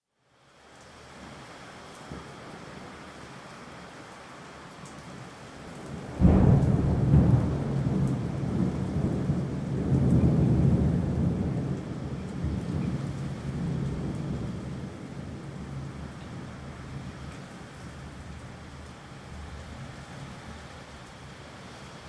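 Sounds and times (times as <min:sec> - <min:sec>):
rain falling: 0:00.2 - 0:22.0
thunderclap and rumble: 0:06.0 - 0:19.6.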